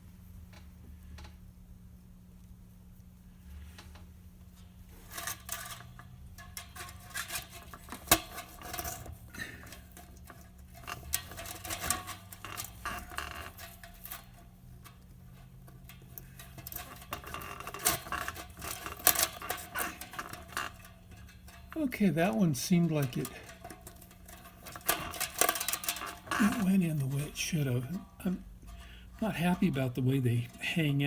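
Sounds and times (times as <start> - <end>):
metal clicks and scrapes: 3.5 - 31.0.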